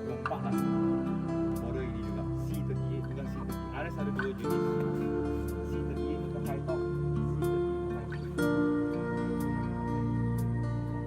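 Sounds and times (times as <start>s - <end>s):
soft instrumental guitar music: 0.0s - 11.0s.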